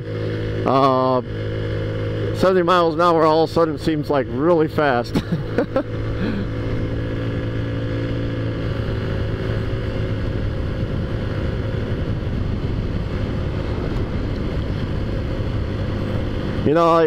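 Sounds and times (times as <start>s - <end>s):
scooter engine humming: 0.0s - 17.0s
wind rush: 8.7s - 17.0s.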